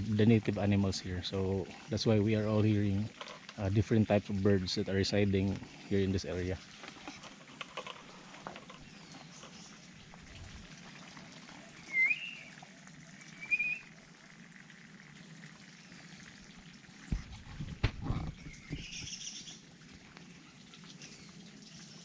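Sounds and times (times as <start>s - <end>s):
bird whistled note: 11.8s - 12.5s, 13.3s - 13.9s
bird trill: 11.8s - 12.6s, 13.3s - 13.9s.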